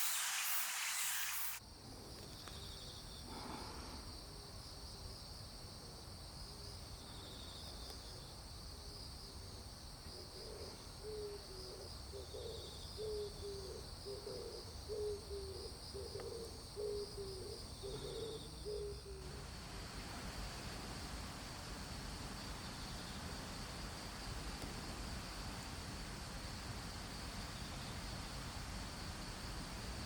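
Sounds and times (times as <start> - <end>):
even hiss: 0.0 - 1.6, 18.7 - 30.0
crickets chirping: 0.0 - 30.0.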